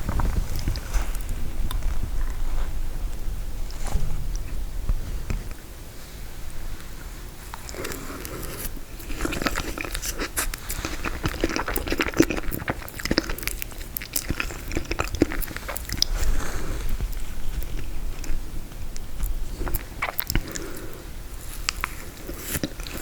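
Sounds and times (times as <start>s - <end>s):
chewing crunchy frozen dessert: 0.0s - 2.7s, 7.3s - 23.0s.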